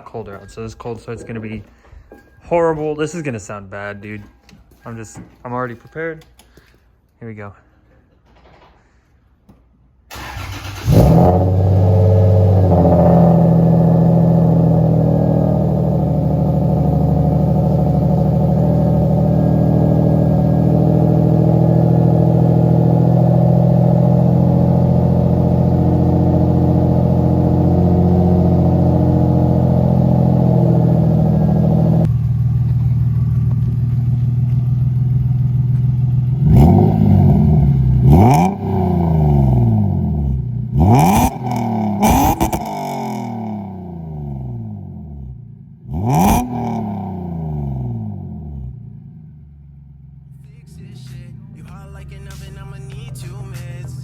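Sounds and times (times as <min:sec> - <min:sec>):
engine revving: 0:10.1 - 0:32.4, 0:35.2 - 0:48.8
car engine idling: 0:10.1 - 0:54.0.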